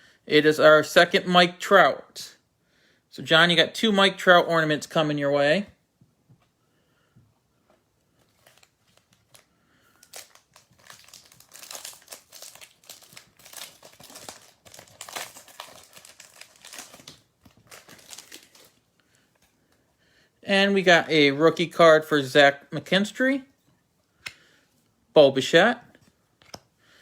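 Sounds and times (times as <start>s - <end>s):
card pack wrapper crinkling and tearing: 8.2s - 18.9s.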